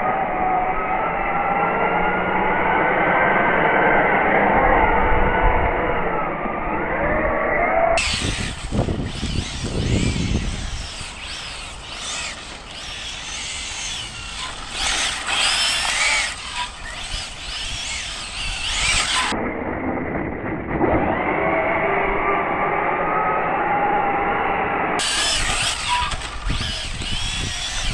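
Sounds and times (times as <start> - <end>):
electric motor whining: 8.0 - 19.4, 25.0 - 27.9
high squeal: 8.0 - 19.4, 25.0 - 27.9.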